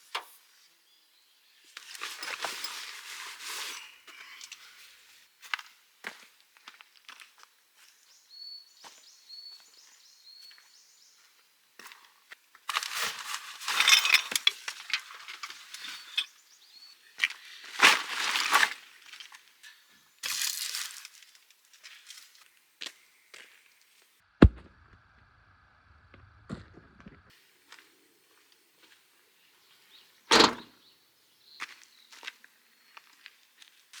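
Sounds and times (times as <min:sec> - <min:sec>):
dry sticks and leaves crunching: 0:12.7 - 0:16.3, 0:17.2 - 0:22.6.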